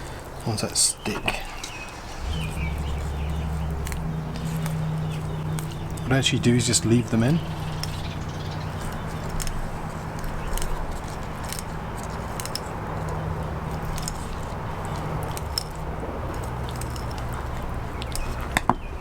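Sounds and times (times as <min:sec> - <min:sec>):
low background hum: 0:01.0 - 0:18.5
small clicks and scrapes: 0:07.8 - 0:18.8.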